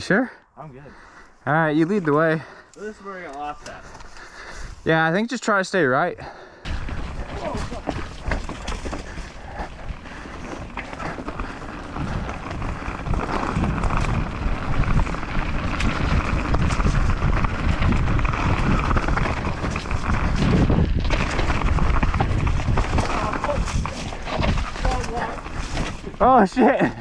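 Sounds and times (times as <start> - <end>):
bike tyres on dirt: 0.0 - 5.0, 6.2 - 27.0
wind on microphone: 6.7 - 25.6
bike clicks and rattles: 6.7 - 27.0.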